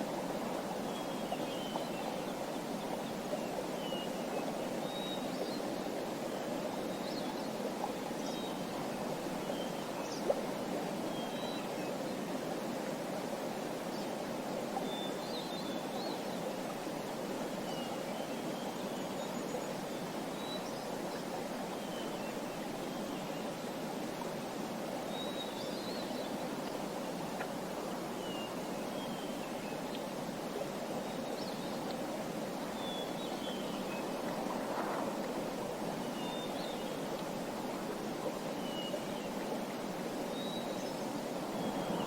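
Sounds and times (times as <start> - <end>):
small songbirds chirping: 0.6 - 10.4, 24.9 - 42.0.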